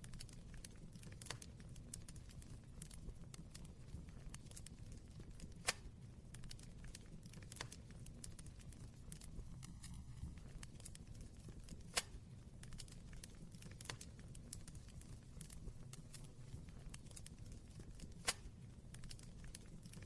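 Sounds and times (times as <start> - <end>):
fire popping: 0.0 - 20.0
wood fire crackling: 0.0 - 20.0.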